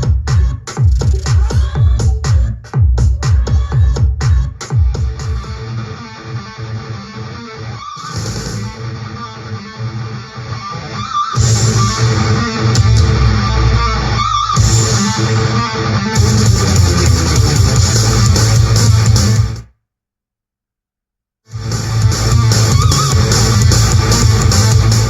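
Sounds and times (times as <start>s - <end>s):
rock music with electric guitar: 4.6s - 19.6s, 21.5s - 25.0s.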